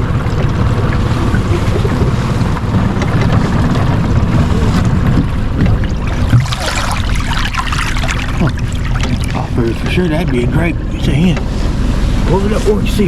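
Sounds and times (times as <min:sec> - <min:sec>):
boat motor running: 0:00.0 - 0:13.0
wind rumbling on microphone: 0:00.0 - 0:13.0.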